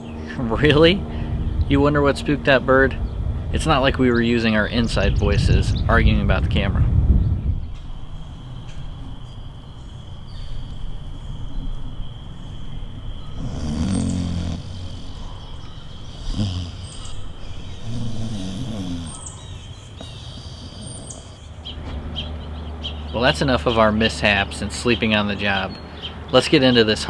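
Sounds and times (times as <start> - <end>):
person snoring: 13.2 - 21.4.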